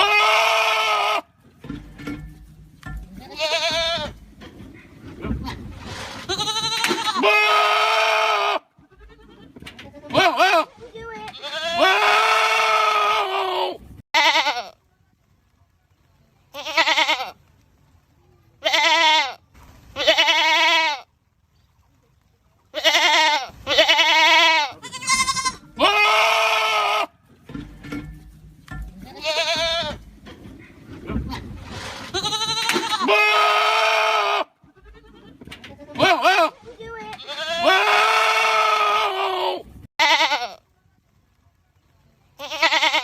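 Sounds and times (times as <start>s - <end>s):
goats screaming: 0.0s - 1.3s, 5.4s - 9.5s, 11.3s - 14.6s, 22.8s - 27.1s, 31.3s - 35.3s, 35.9s - 40.6s.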